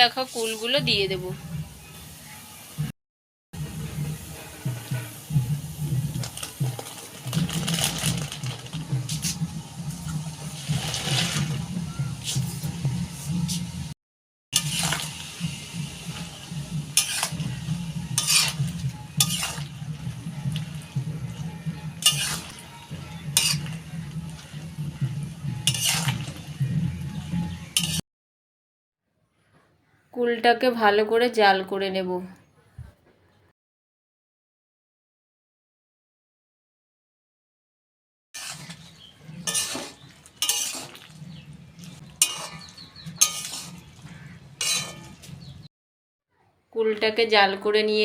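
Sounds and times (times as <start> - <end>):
spatula scraping a pan: 3.8 - 13.8, 14.6 - 28.0, 38.4 - 45.6.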